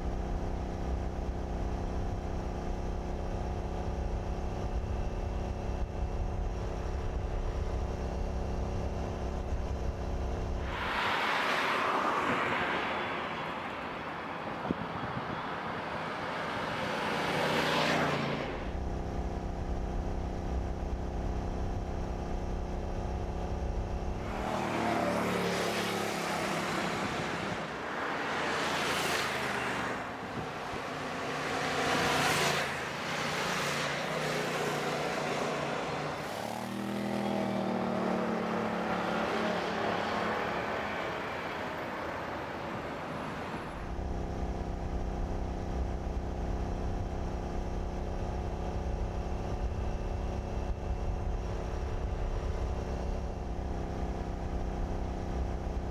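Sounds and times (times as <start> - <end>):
cars driving past: 10.6 - 18.7, 24.2 - 43.8
low engine rumble: 43.8 - 55.9.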